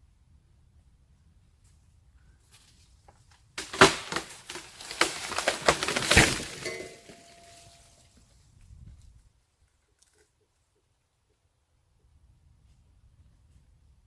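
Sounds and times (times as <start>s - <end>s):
tree branch crashing down: 3.6s - 7.9s.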